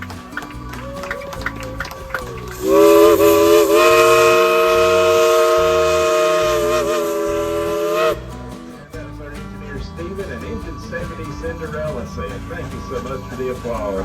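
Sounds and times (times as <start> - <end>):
steam locomotive whistle blast: 2.6 - 8.4.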